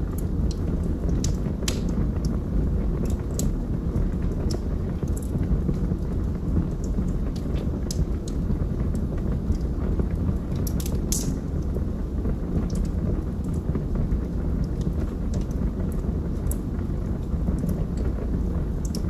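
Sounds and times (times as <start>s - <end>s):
fire flames rumbling: 0.0s - 19.0s
logs crackling and popping: 0.0s - 19.0s.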